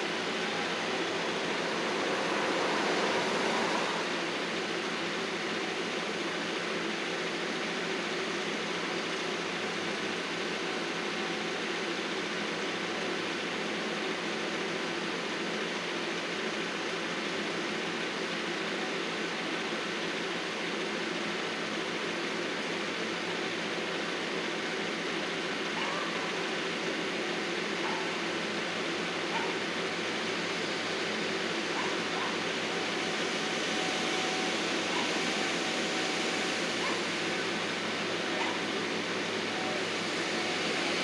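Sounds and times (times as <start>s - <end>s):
heavy equipment engine running: 0.0s - 8.2s, 23.7s - 41.0s.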